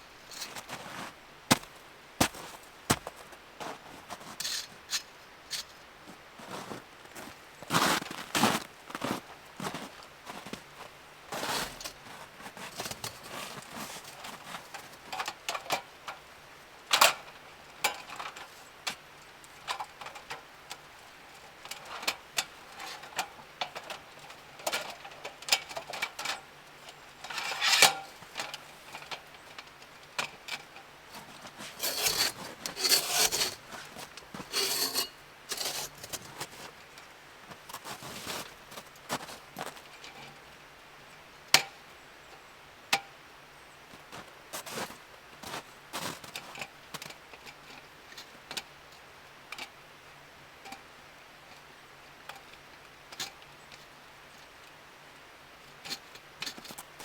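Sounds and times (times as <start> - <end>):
rustling: 31.1 - 36.8.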